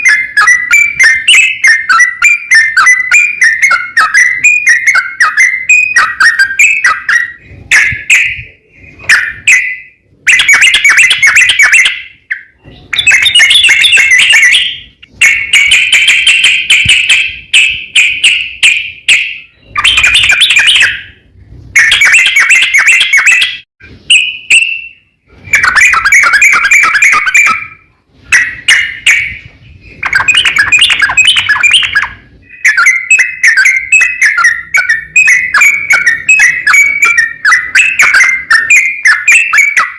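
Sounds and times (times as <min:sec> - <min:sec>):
bird bubbling chattering song: 0:25.5 - 0:39.9.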